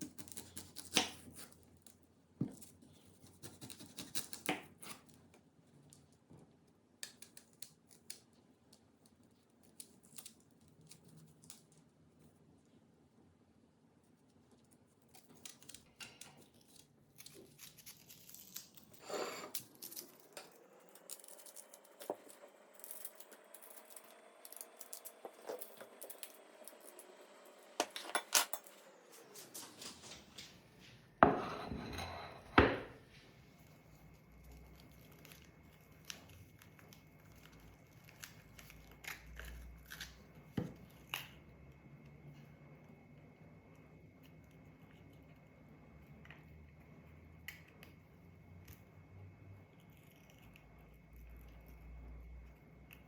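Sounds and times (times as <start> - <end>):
dishes and utensils clinking: 31.2 - 33.0
dishes clattering: 31.2 - 33.0.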